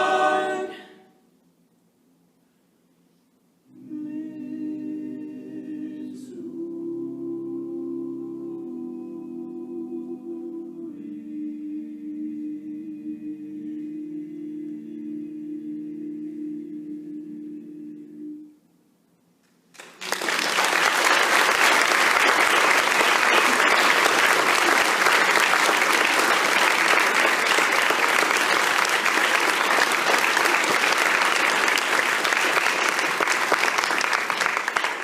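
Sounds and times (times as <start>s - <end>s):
audience applauding: 19.8s - 35.0s.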